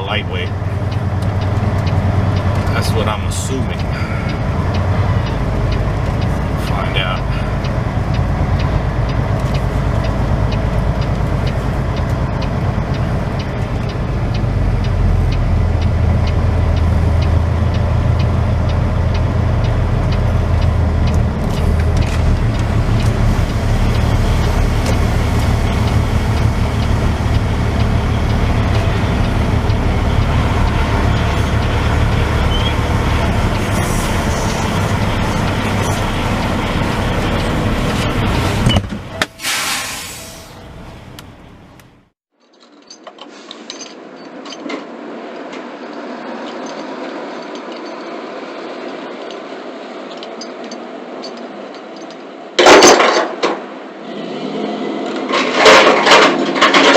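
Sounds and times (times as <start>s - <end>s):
diesel truck engine running: 0.0s - 42.2s.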